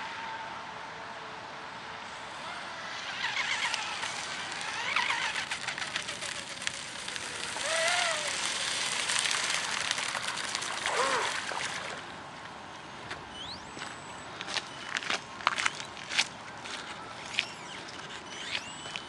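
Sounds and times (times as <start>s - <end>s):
model boat motor whining: 2.3s - 12.0s.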